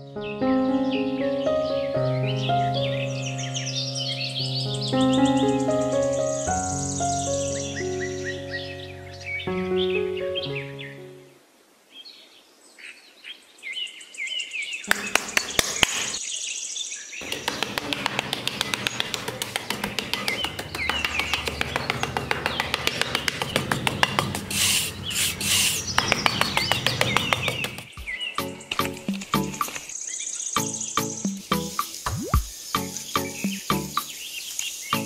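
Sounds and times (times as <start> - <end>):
birds chirping: 0.9 - 35.0
metal trowel scraping sand: 24.4 - 26.0.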